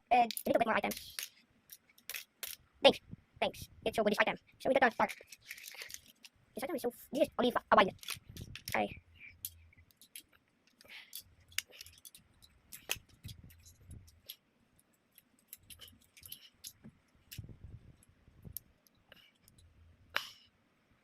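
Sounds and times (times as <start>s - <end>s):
plastic toy bricks clicking: 0.2s - 2.6s, 5.0s - 6.3s, 7.9s - 14.4s.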